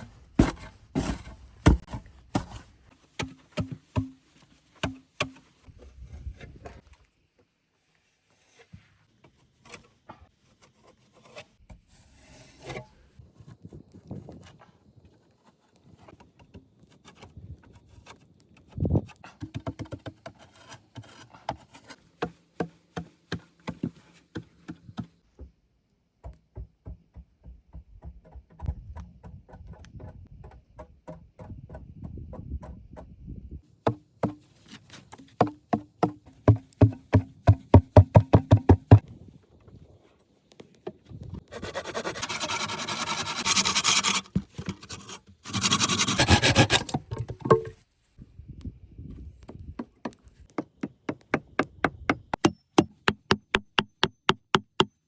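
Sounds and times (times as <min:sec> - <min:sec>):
rapid strikes on wood: 0:33.9 - 0:34.4, 0:35.4 - 0:39.0, 0:49.5 - 0:55.0
knocks and taps on wood: 0:35.4 - 0:39.0, 0:49.5 - 0:54.9
rasping scrape on wood: 0:41.5 - 0:47.6.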